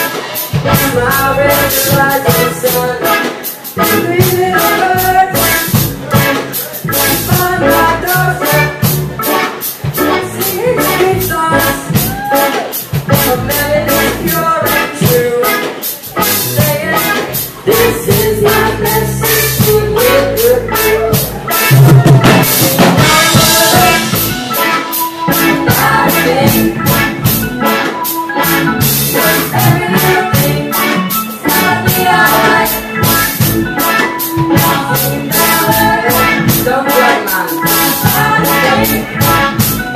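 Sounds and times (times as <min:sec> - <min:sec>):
live reggae band playing: 0:00.0 - 0:39.9.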